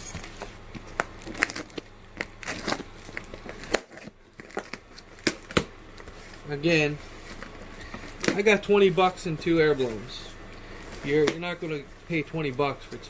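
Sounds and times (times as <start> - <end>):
packaging crinkling: 0.4 - 8.5.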